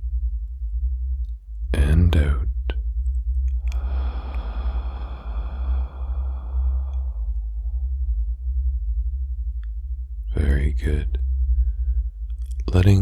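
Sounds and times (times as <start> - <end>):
low binaural drone: 0.0 - 13.0
long breath out: 3.6 - 8.1.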